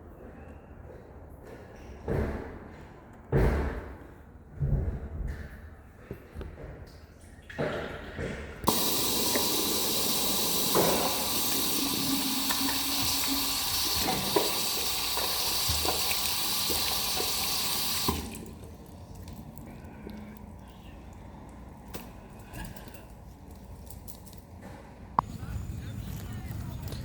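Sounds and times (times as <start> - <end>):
water running from a tap: 8.7 - 18.8.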